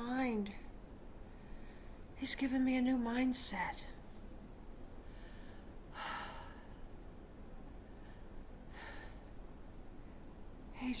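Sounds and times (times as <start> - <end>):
woman breathing: 1.2 - 2.2, 4.9 - 7.0, 7.8 - 10.3.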